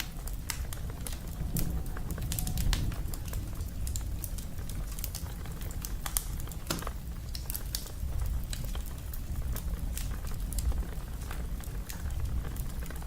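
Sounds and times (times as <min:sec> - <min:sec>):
low steady rumble: 0:00.0 - 0:13.0
wood fire crackling: 0:00.0 - 0:13.0.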